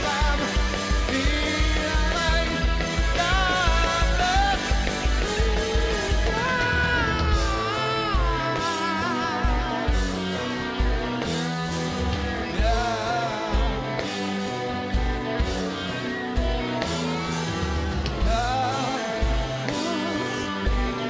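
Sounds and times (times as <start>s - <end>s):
person singing: 0.0s - 10.1s
rock band playing live: 0.0s - 21.0s.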